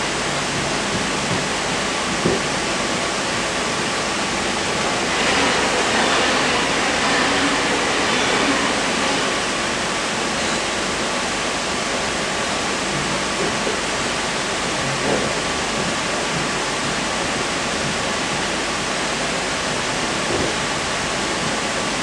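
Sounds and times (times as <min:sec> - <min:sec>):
train cabin rumble: 0:00.4 - 0:11.7.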